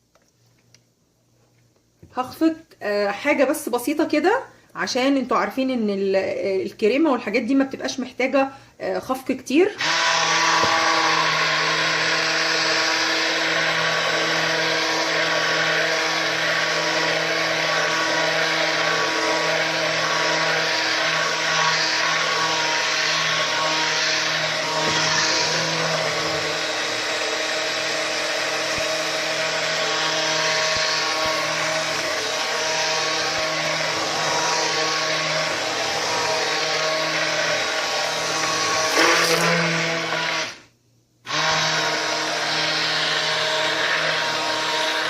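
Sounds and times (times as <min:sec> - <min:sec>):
hand blender motor humming: 0:09.8 - 0:40.6, 0:41.3 - 0:45.0.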